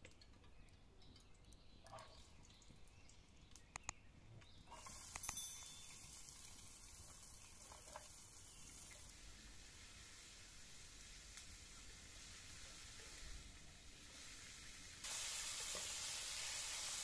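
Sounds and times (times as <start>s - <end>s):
onions sizzling in hot oil: 4.8s - 17.0s.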